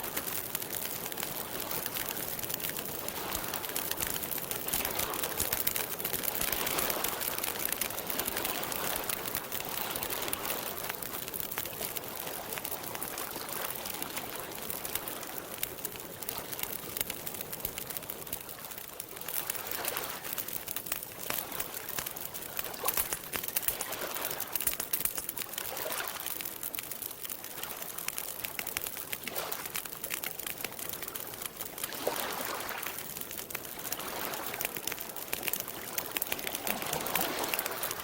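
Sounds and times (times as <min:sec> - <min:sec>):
campfire crackling and popping: 0:00.0 - 0:38.0
lake water lapping: 0:31.8 - 0:33.0, 0:33.8 - 0:34.6, 0:35.4 - 0:38.0.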